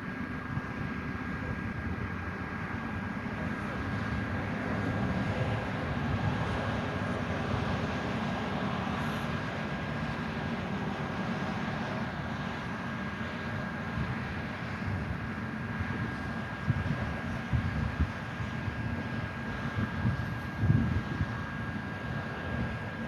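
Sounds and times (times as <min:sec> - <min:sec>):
vehicle engine hum with whine: 0:00.0 - 0:23.0.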